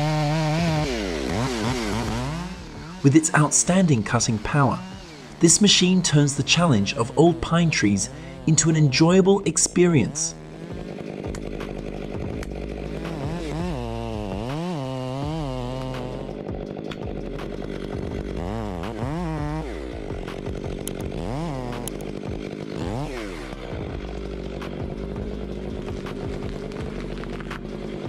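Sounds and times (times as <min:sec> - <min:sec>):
chainsaw engine revving: 0:00.0 - 0:28.0.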